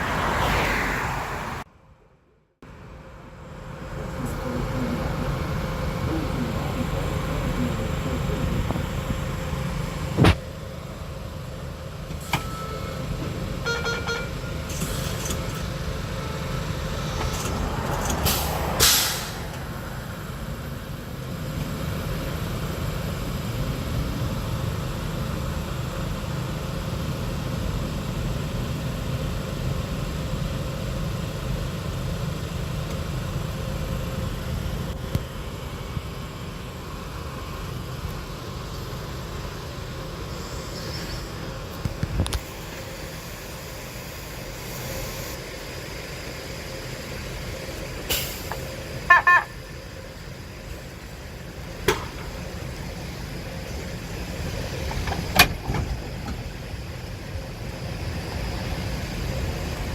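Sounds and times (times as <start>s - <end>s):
railcars low rumble: 0.0s - 59.9s
short beeps: 12.3s - 13.0s, 49.1s - 49.6s
air hiss burst: 18.2s - 19.5s, 48.1s - 48.6s.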